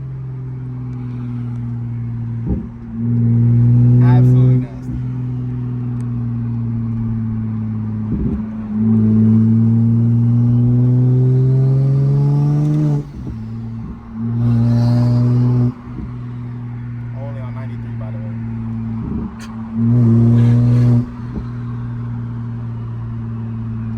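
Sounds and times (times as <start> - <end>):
car engine accelerating hard: 0.0 - 23.9
engine running steadily: 0.0 - 23.9
loud throttle burst: 8.2 - 23.9.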